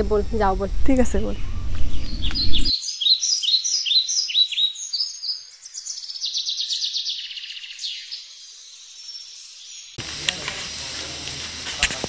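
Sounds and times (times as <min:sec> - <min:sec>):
bird chirping: 0:00.0 - 0:10.0.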